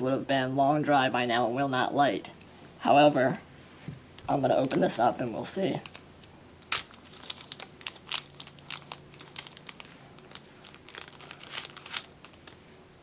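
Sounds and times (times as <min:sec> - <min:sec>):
plastic bag crinkling: 0:05.7 - 0:12.7.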